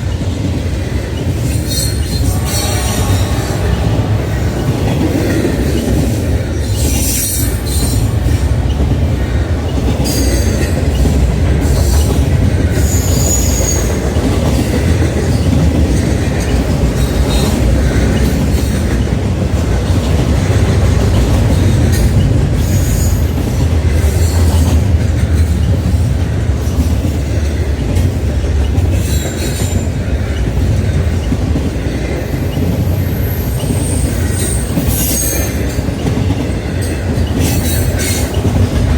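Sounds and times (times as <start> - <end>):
train wheels rumbling on rail: 0.0 - 38.9
high-pitched wheel squeals: 1.6 - 5.9.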